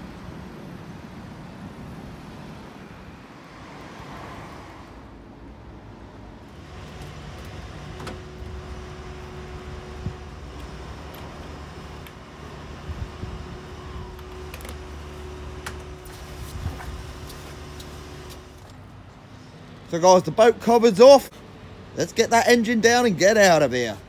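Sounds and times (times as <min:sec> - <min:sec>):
low outdoor rumble: 0:06.2 - 0:19.2.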